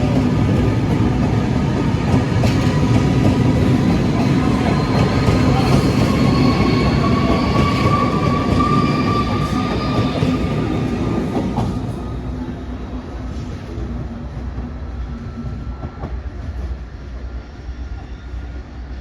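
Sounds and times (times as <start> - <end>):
train wheels rumbling: 0.0 - 18.6
train wheel squeal: 1.6 - 12.5, 14.8 - 19.0.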